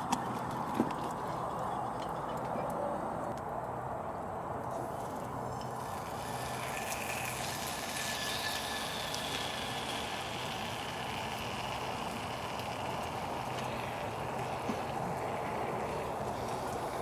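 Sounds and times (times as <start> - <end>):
campfire hissing: 4.7 - 17.0
fire crackling: 4.7 - 17.0.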